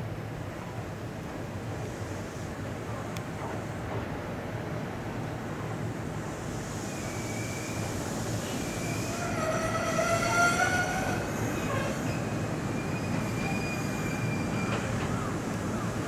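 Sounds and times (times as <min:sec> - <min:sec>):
electric train rumbling: 0:00.0 - 0:16.0
high-pitched wheel squeal: 0:08.7 - 0:14.9.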